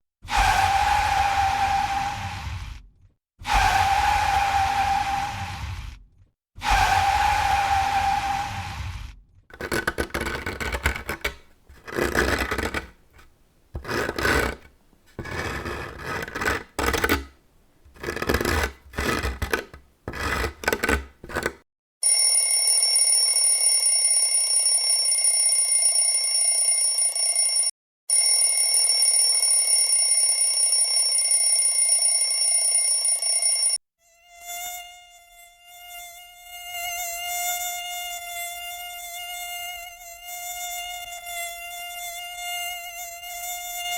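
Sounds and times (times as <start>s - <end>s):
harsh rubbing noise: 6.6s - 21.6s
mosquito buzzing in flight: 34.0s - 43.9s.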